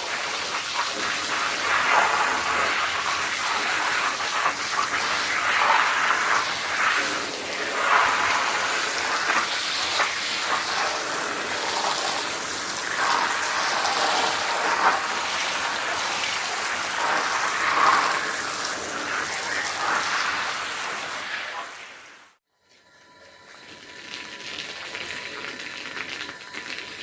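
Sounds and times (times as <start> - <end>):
water spraying onto wet carpet: 0.0 - 22.2.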